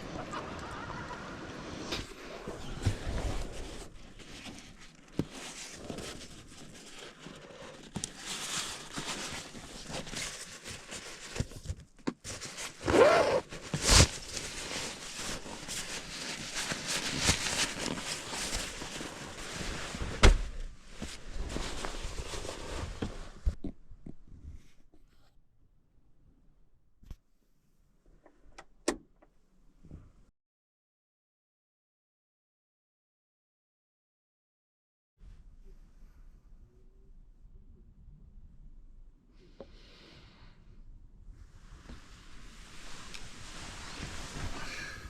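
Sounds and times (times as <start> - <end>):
rustling and handling noises: 0.0 - 25.4, 41.7 - 45.0.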